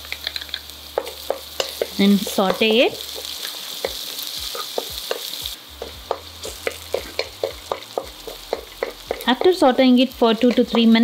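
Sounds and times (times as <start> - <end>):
vegetables sizzling in oil: 0.0 - 11.0
wooden spatula tapping pan: 4.6 - 11.0.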